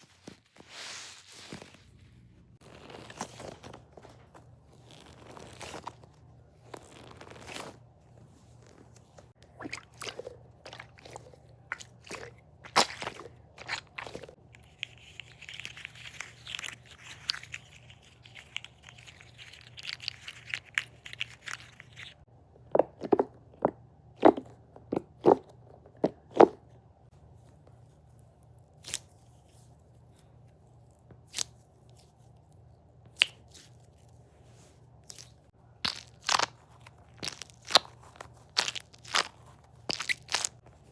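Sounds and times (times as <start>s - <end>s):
soft crinkling: 0.0s - 22.3s, 27.1s - 40.9s
squishy toy crackles and clicks: 10.9s - 22.2s, 35.1s - 40.9s.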